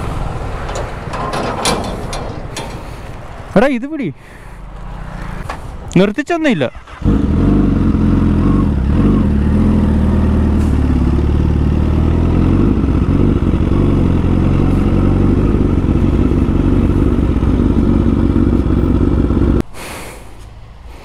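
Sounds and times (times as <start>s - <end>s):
motorcycle engine running: 7.0s - 19.6s.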